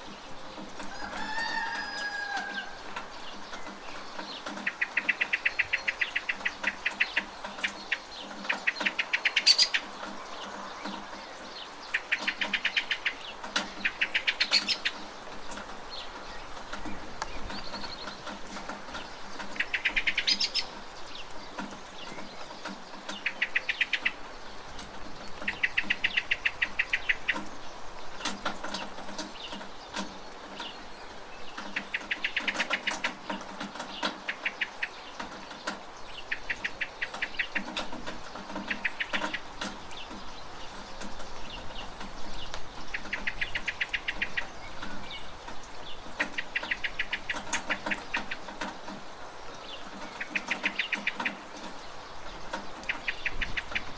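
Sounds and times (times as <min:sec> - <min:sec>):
steady rain: 0:00.0 - 0:53.9
bird chattering trills: 0:01.8 - 0:24.5, 0:25.2 - 0:27.8, 0:31.5 - 0:53.9
sharp dripping taps: 0:31.5 - 0:49.1.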